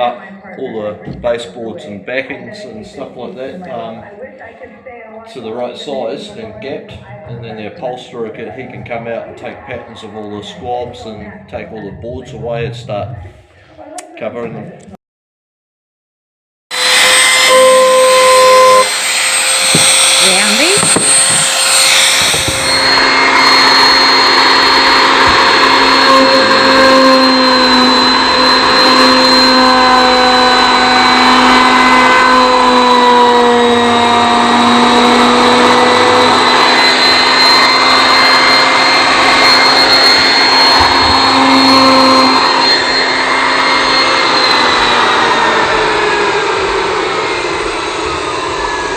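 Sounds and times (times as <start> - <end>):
loud motor whine: 5.2 - 13.3, 16.7 - 48.9
rushing noise: 16.7 - 33.0, 34.2 - 48.9.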